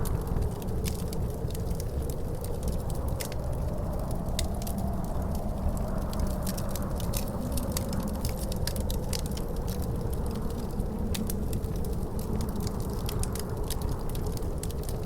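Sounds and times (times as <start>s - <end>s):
faint wind howl: 0.0s - 15.0s
storm wind rumble: 0.0s - 15.0s
wood fire crackling: 0.0s - 15.0s.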